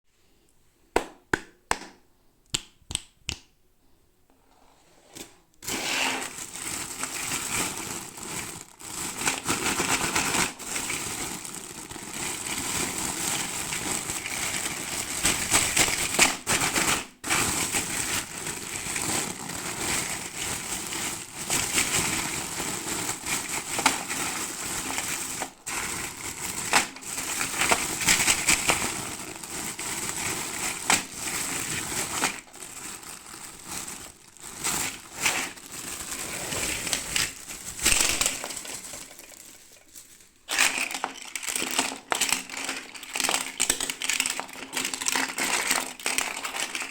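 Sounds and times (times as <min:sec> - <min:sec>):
sharp clicks and taps: 0:01.0 - 0:03.6
toy packaging crinkling: 0:05.6 - 0:46.9.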